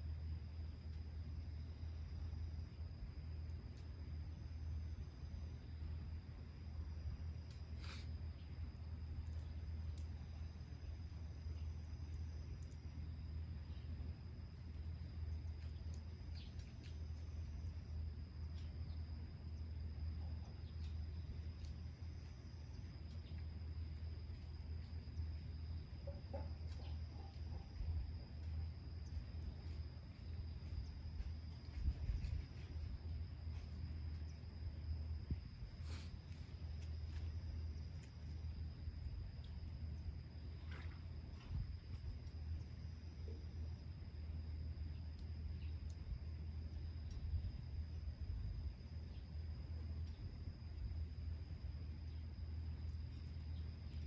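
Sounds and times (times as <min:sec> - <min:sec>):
insects chirping: 0:00.0 - 0:54.0
faint clicks: 0:09.9 - 0:10.2.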